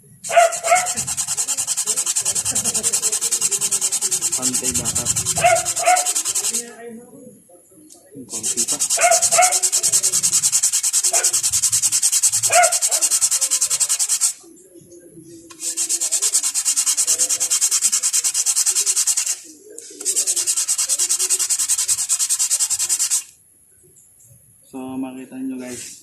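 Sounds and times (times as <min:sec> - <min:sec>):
brake pad scraping on sandpaper: 0:00.3 - 0:06.7, 0:08.3 - 0:14.4, 0:15.5 - 0:23.3.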